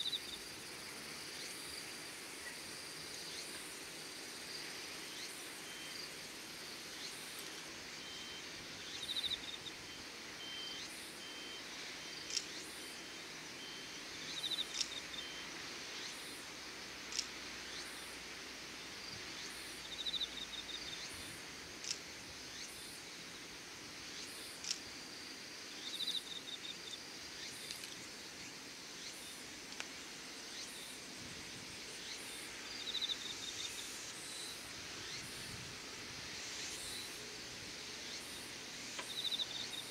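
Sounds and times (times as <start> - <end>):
crickets chirping: 0.0 - 39.9
steady outdoor hiss: 0.0 - 39.9
faint pulsing chirp: 4.5 - 16.4, 30.5 - 35.7, 36.3 - 39.9.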